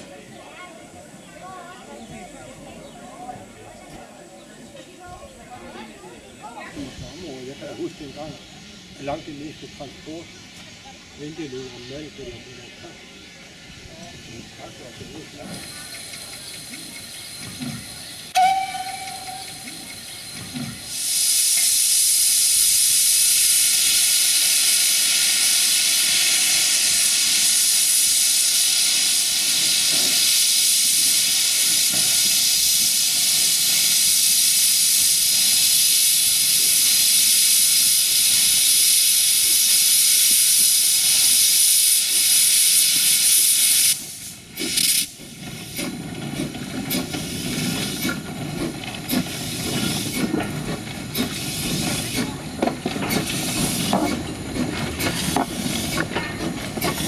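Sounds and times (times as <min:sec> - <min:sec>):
steam hissing: 0:06.5 - 0:57.0
whistle toot: 0:18.3 - 0:20.0.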